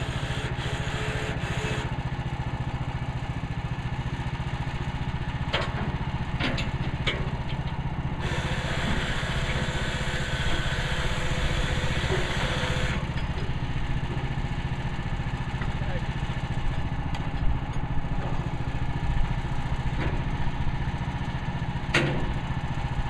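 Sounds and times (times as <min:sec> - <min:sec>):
sawmill engine running: 0:00.0 - 0:23.0.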